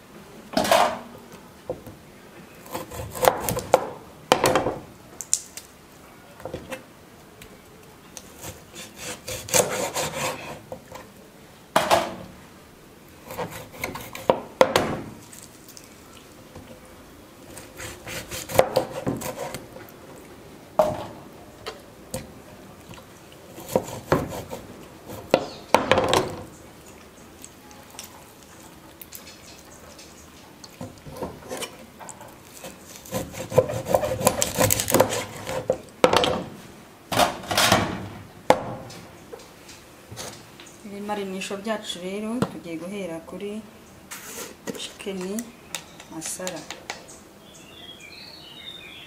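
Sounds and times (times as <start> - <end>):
scraping and rubbing: 8.3 - 11.1, 17.5 - 19.9, 23.5 - 25.6, 30.8 - 35.8, 44.1 - 44.8.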